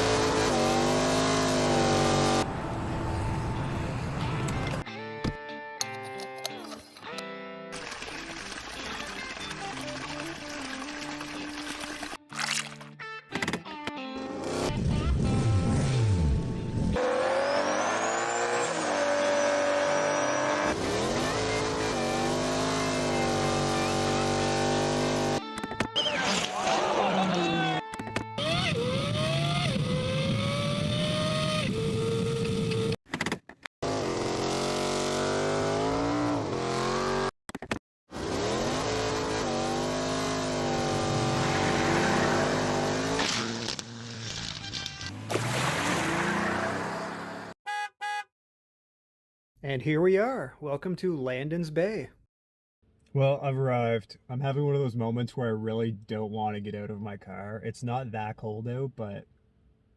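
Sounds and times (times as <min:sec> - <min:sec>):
car engines revving: 0:00.0 - 0:04.8, 0:17.0 - 0:25.4, 0:38.2 - 0:43.7, 0:45.1 - 0:47.6
car passing: 0:45.1 - 0:47.6.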